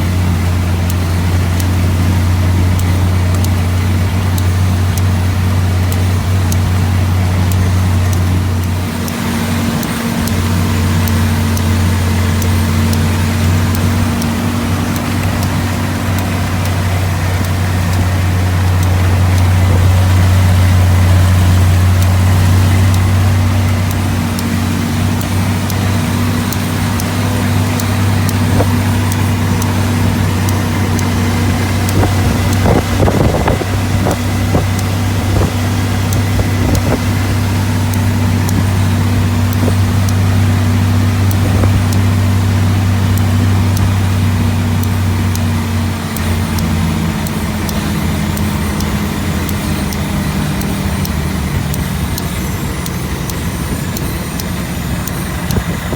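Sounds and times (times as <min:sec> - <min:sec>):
small ticks: 0:00.0 - 0:55.9
truck engine droning: 0:00.0 - 0:55.9.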